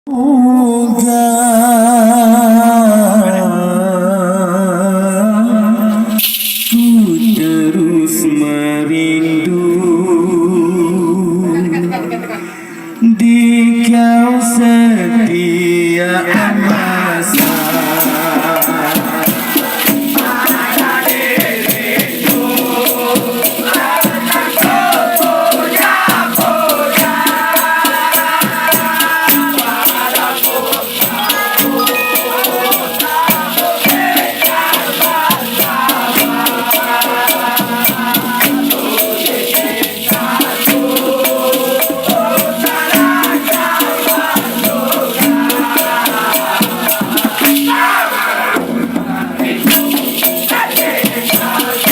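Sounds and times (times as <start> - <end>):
shaker rhythm: 6.0 - 7.8, 17.2 - 51.9
instrumental melody: 29.3 - 45.0.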